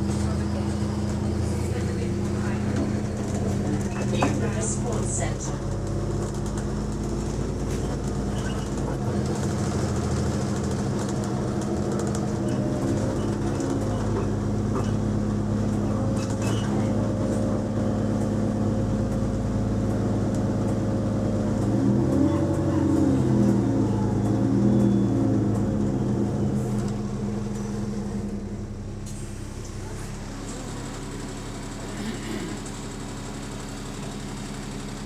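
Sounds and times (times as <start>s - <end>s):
bus engine droning: 0.0s - 35.0s.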